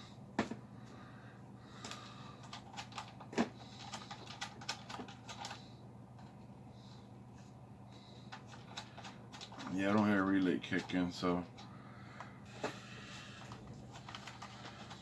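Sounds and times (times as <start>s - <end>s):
amplifier cooling fans humming: 0.0s - 15.0s.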